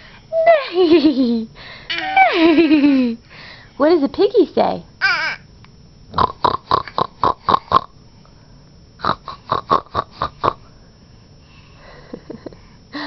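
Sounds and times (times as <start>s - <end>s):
person imitating pig snorts: 6.1s - 7.9s, 9.0s - 10.6s.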